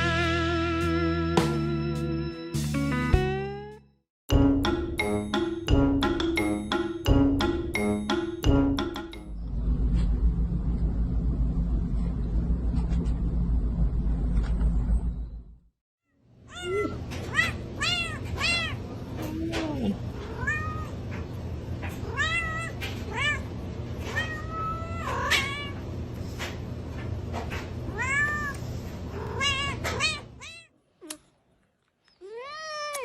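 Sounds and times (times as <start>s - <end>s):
steady low hum: 9.2s - 15.7s
cat meowing: 20.2s - 21.0s, 32.2s - 33.0s.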